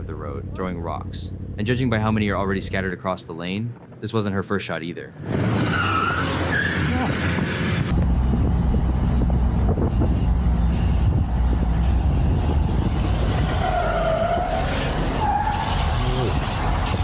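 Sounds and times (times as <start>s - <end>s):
motorcycle engine rumble: 5.0s - 13.5s
wind noise on microphone: 6.8s - 15.0s.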